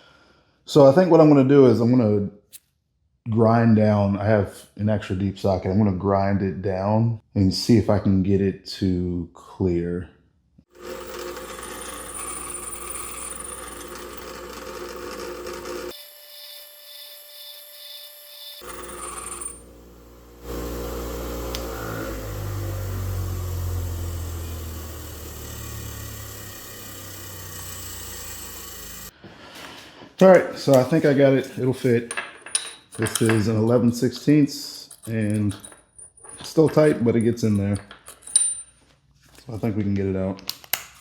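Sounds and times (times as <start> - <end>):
power grinder grinding steel: 10.7 - 29.1.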